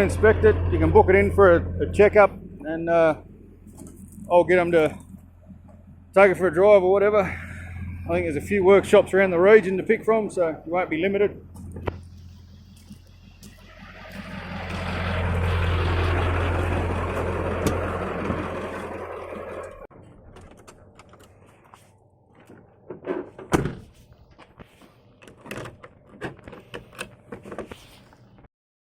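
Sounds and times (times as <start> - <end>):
diesel truck engine running: 0.0 - 21.0
sharp thunk: 23.4 - 24.0.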